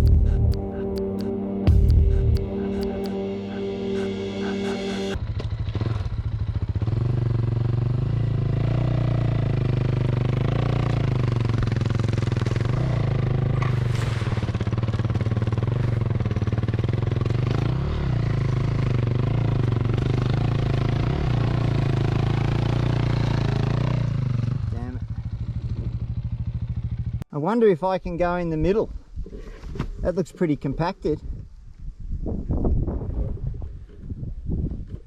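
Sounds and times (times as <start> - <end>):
steady held tones: 0.0 - 5.2
dirt bike engine running: 5.1 - 27.2.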